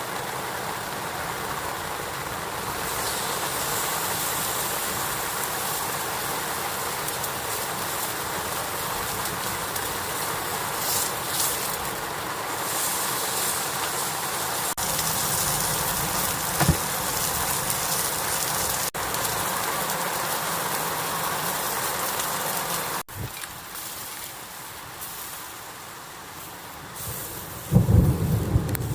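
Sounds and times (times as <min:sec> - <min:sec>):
heavy rain falling: 0:00.0 - 0:28.9
short low thump: 0:16.6 - 0:16.9.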